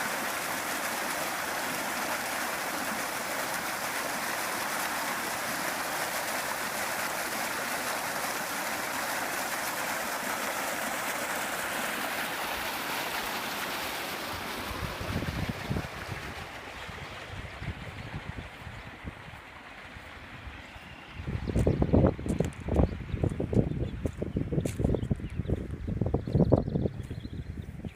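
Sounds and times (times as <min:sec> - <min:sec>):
flood water rushing: 0:00.0 - 0:22.8
wind buffeting on microphone: 0:14.7 - 0:19.4, 0:20.3 - 0:27.9.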